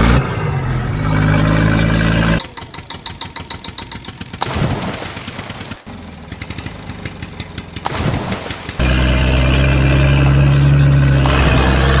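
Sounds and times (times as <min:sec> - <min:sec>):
engine ticking over: 0:05.9 - 0:10.5
loud steady engine note: 0:05.9 - 0:12.0.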